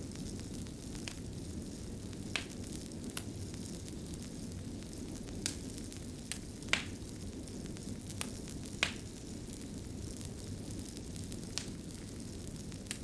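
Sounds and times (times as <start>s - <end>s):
fire crackling: 0.0s - 13.0s
sharp pops and snaps: 6.3s - 7.0s, 8.8s - 9.0s.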